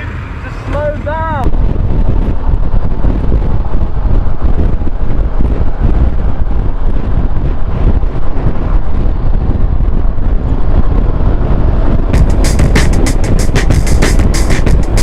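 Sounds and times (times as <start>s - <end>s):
low vehicle rumble: 0.0s - 15.0s
wind buffeting microphone: 0.0s - 15.0s.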